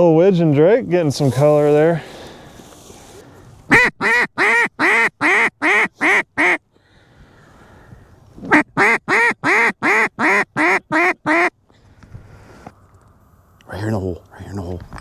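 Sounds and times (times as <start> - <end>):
duck call quacks: 3.7 - 6.6, 8.5 - 11.5.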